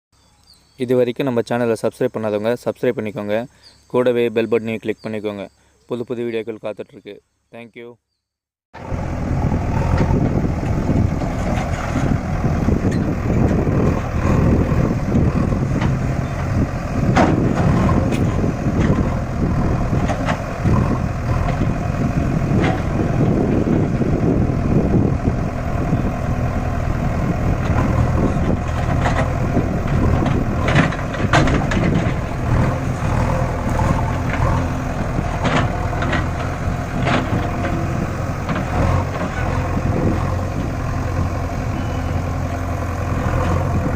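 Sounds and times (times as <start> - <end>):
tractor diesel engine running: 8.8 - 43.9
trolley clanking and rattling: 9.8 - 14.4, 15.4 - 21.8, 27.6 - 40.4.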